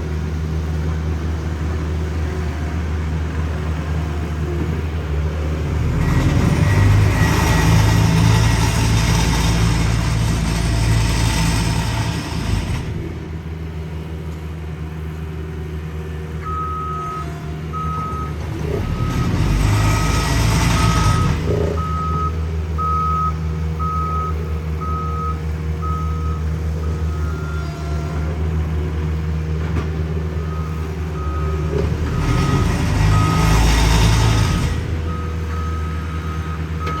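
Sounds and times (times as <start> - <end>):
paving machine engine humming: 0.0 - 37.0
backup alarm beeping: 20.8 - 26.4.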